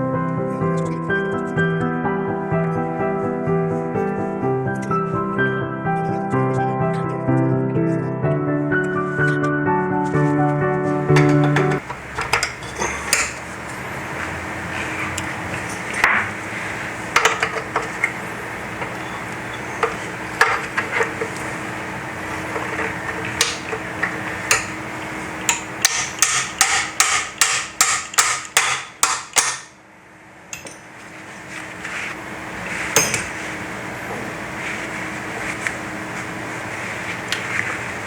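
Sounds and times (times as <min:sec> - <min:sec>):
hammer tapping on metal: 0:11.1 - 0:13.4, 0:22.8 - 0:24.8, 0:25.4 - 0:29.7.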